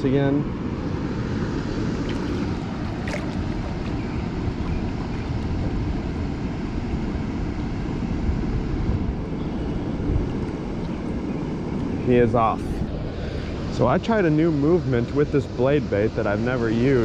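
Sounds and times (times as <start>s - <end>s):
water rushing through spillway: 1.8s - 5.6s.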